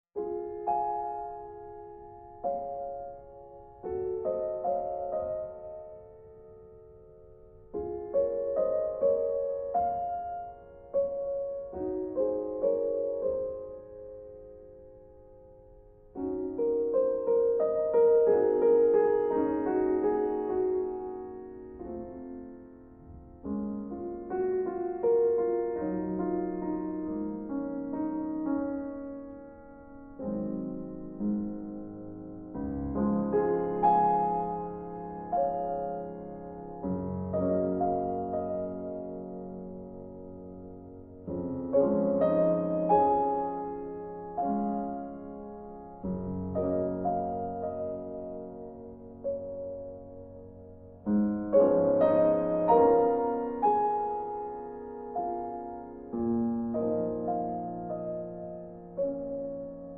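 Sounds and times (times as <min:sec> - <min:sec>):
soft solo piano: 0:00.2 - 0:59.9.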